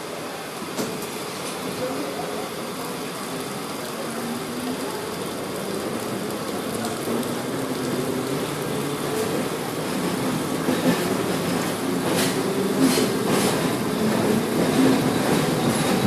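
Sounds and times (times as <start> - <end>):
rain falling: 0.0 - 16.0
train rushing noise: 4.6 - 16.0.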